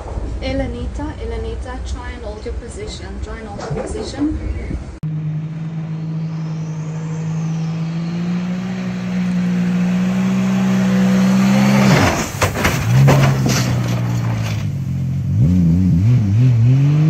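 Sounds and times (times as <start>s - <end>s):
engine running: 5.0s - 17.0s
sudden burst of noise and knocks: 11.9s - 14.7s.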